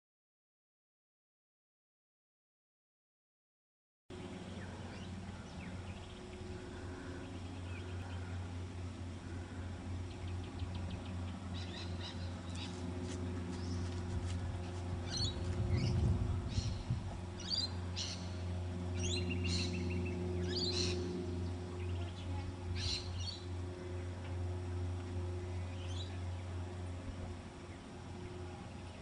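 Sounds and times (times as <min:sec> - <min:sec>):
low hum: 0:04.1 - 0:29.0
low rumble: 0:04.1 - 0:29.0
birds chirping: 0:04.2 - 0:29.0.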